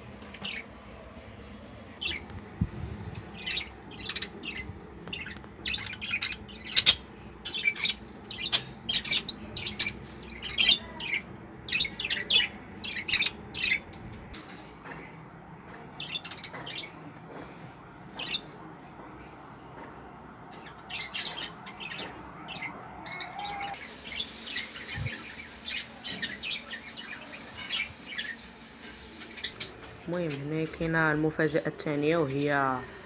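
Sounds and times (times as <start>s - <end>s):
budgerigars chirping and squawking: 0.3s - 0.6s, 3.3s - 13.9s, 16.0s - 17.0s, 20.5s - 30.4s.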